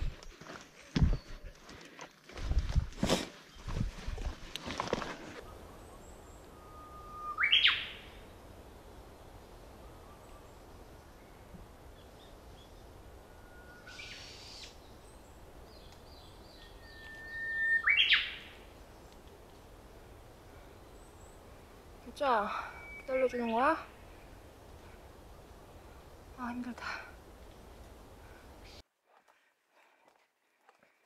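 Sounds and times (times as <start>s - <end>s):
bird whistle with upward sweep: 6.5s - 8.0s, 16.8s - 18.4s.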